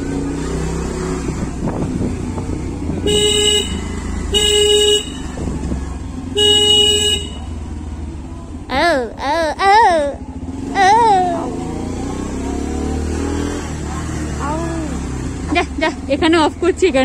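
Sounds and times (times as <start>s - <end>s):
motorcycle engine running: 0.0s - 9.2s, 9.9s - 17.0s
road noise: 0.0s - 17.0s
vehicle horn honks: 3.0s - 5.4s, 6.3s - 7.6s.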